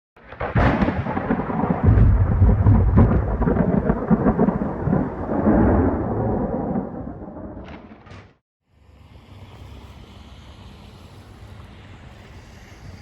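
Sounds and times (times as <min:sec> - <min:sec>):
crackling thunder rumble: 0:00.2 - 0:08.4.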